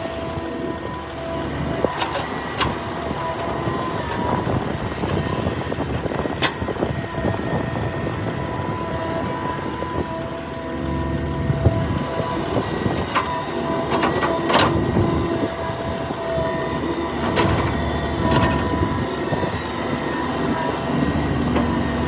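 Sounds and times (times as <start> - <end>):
excavator diesel engine rumble: 0.0 - 22.0
hydraulic whine: 0.0 - 22.0.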